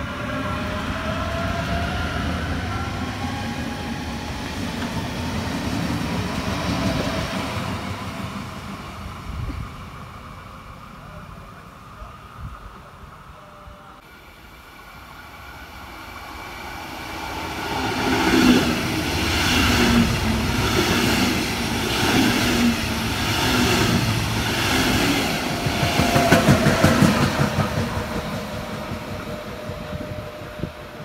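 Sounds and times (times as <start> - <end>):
passenger train rumbling past: 0.0 - 31.0
train wheel clatter: 18.0 - 30.6.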